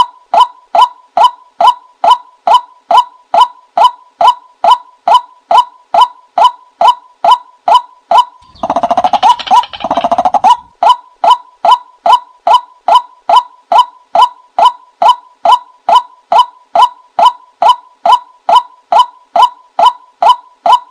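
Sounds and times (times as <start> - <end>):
rapid chattering bird calls: 8.1 - 11.4
short bird calls: 8.4 - 11.0.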